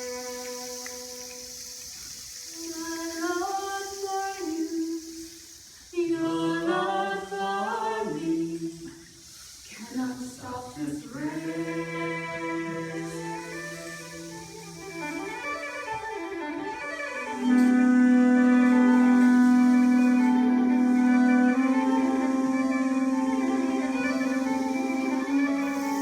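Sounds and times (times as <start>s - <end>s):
voices singing held notes: 6.0s - 9.1s, 9.7s - 26.0s.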